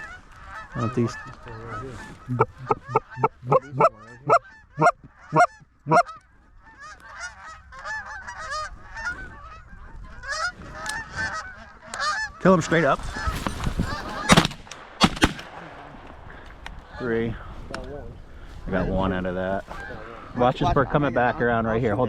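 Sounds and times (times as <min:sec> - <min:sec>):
flock of geese honking: 0:00.0 - 0:14.5, 0:18.1 - 0:22.0
loud close goose honks: 0:00.0 - 0:14.5.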